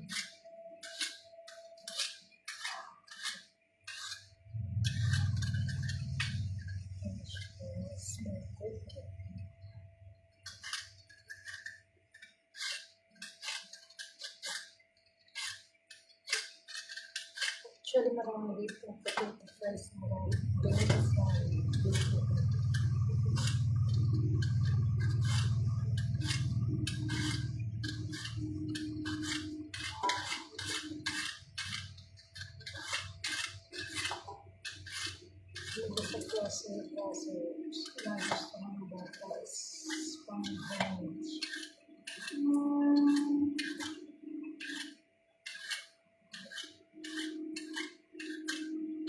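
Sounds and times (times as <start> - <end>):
blade scraping potatoes: 0.0 - 9.8, 10.4 - 49.0
faint steady hum: 4.5 - 10.7, 19.7 - 41.6.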